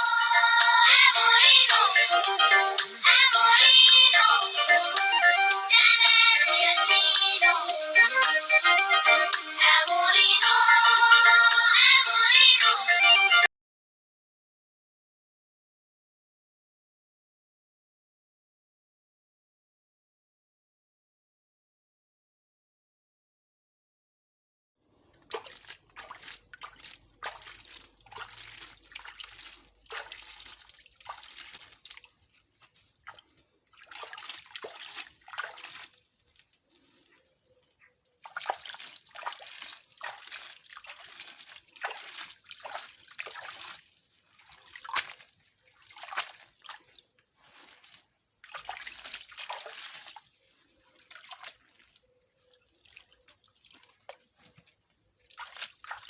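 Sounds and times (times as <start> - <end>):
water dripping: 24.9 - 56.0
water trickling and splashing: 24.9 - 56.0.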